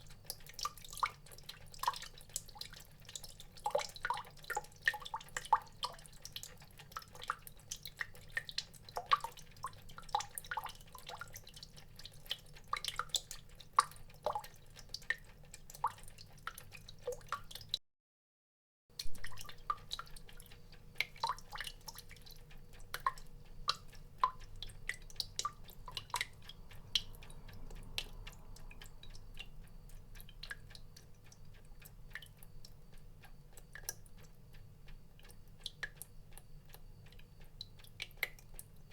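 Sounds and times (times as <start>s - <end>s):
water drops plinking: 19.0s - 20.1s.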